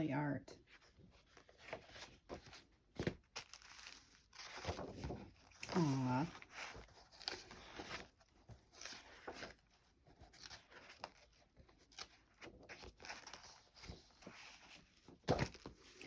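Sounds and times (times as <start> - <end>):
paper pages rustling: 0.7 - 16.0.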